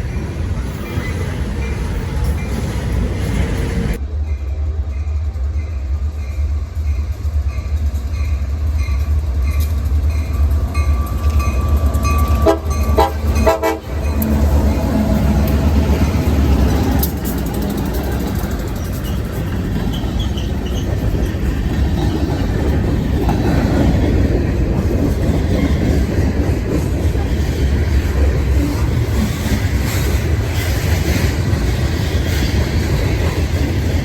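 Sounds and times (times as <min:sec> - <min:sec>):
train rumbling past: 0:00.0 - 0:34.0
short horn blasts: 0:12.3 - 0:14.0.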